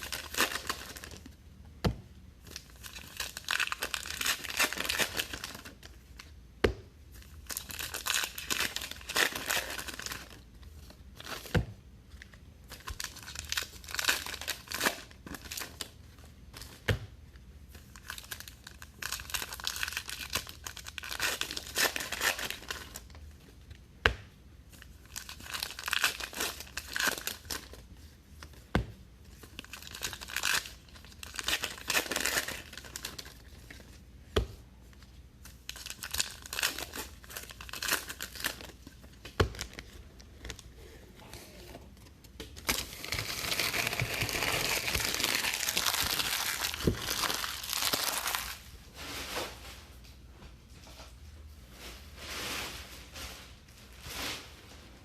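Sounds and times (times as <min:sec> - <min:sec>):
card wrappers crinkling: 0:00.0 - 0:01.3, 0:02.4 - 0:06.1, 0:07.2 - 0:10.4, 0:12.7 - 0:16.0, 0:17.8 - 0:23.1, 0:24.8 - 0:27.9, 0:29.3 - 0:34.0, 0:35.0 - 0:40.7, 0:42.0 - 0:48.7.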